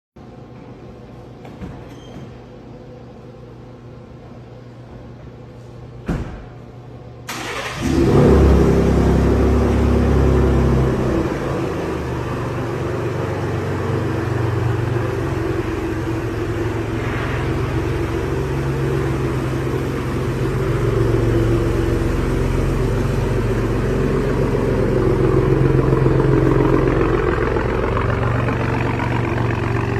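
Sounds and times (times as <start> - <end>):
truck engine starting and idling: 7.2 - 29.9.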